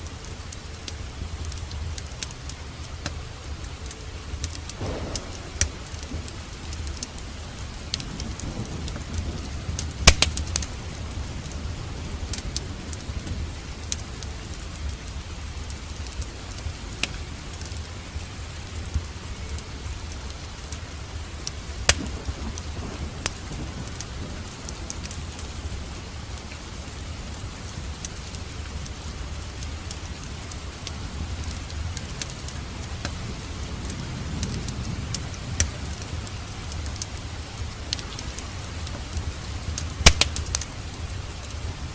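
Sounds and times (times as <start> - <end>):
steady rain: 0.0 - 41.9
wood fire crackling: 0.0 - 41.9
low rumble: 4.7 - 13.7.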